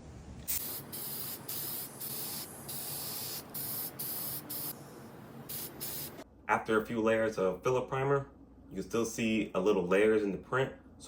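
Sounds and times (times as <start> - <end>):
aerosol can spraying in hissing bursts: 0.4 - 6.2.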